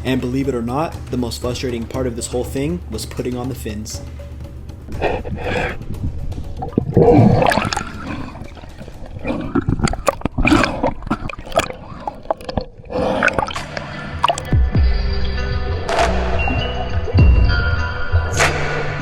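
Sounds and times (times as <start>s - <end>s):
water splashing and sloshing: 4.9s - 14.6s.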